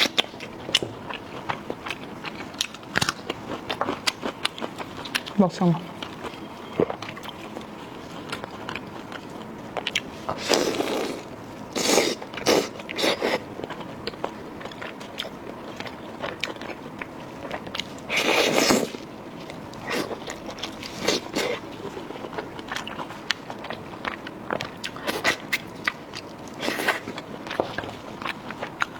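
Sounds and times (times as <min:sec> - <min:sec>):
wet chewing and biting: 0:00.0 - 0:28.9
biting and tearing food: 0:01.9 - 0:05.3.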